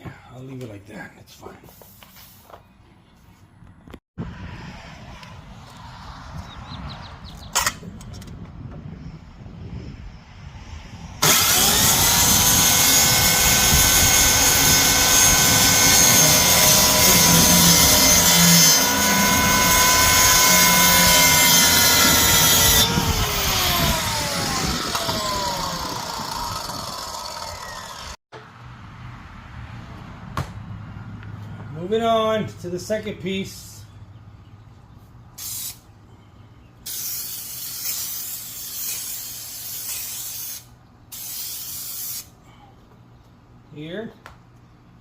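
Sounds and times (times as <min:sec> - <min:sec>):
power tool motor whining: 0:11.2 - 0:28.2.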